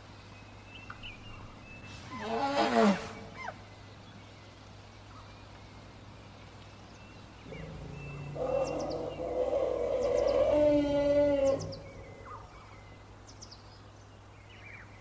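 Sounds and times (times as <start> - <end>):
small birds chirping: 0.0 - 15.0
low rumbling: 7.4 - 13.0
elephant call: 7.5 - 12.7.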